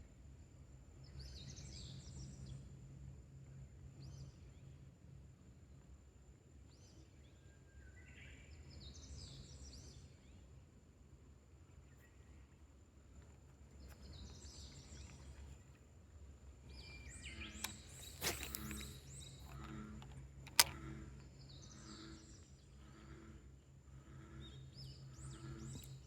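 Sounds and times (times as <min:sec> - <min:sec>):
birds chirping: 0:13.2 - 0:15.8, 0:16.4 - 0:23.4
sharp click: 0:17.4 - 0:20.9.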